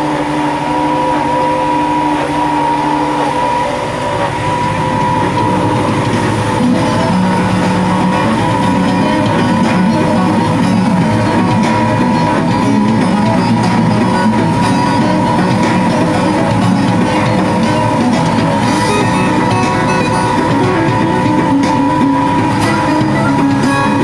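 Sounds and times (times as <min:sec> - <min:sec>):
guitar background music: 0:03.4 - 0:24.0.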